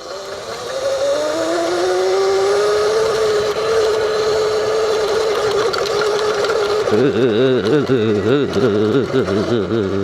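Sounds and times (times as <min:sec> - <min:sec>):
electric motorbike motor whining: 0:00.0 - 0:10.0
wind and road noise: 0:00.0 - 0:10.0.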